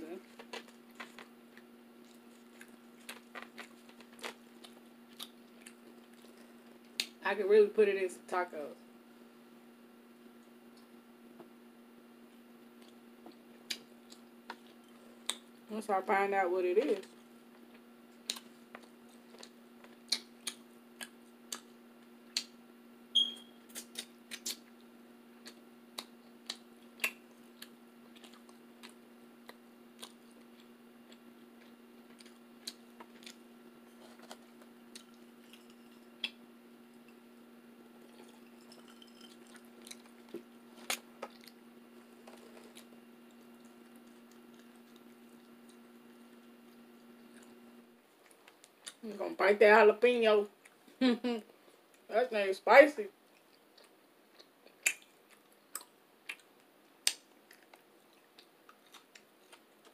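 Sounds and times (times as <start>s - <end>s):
steady low hum: 0.0s - 59.9s
person chewing food: 0.3s - 7.1s, 17.5s - 21.7s, 23.7s - 49.0s, 53.2s - 59.9s
brief squeak: 23.2s - 23.6s
mouth smacks: 23.7s - 24.6s, 54.4s - 57.2s.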